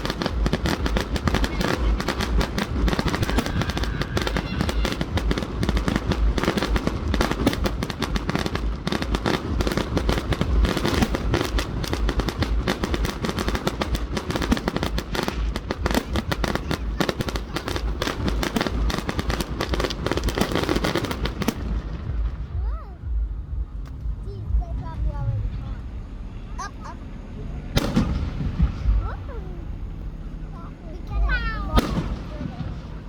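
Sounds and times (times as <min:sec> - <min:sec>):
deep fireworks booms: 0:00.0 - 0:27.0, 0:27.7 - 0:33.0
fireworks crackling bangs: 0:00.0 - 0:27.0, 0:27.7 - 0:33.0.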